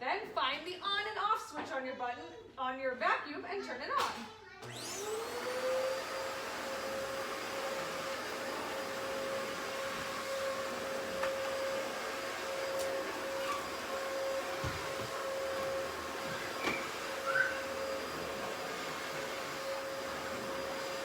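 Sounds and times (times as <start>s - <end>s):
vacuum cleaner running: 4.6s - 21.0s.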